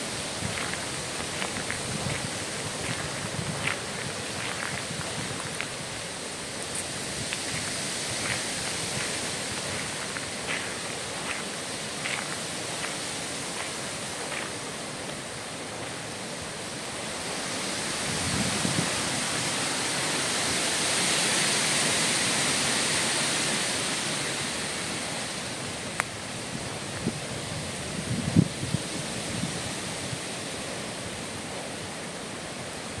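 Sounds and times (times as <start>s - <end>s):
footsteps on forest floor: 0.0s - 6.0s, 6.6s - 16.2s
wind through trees: 0.0s - 33.0s.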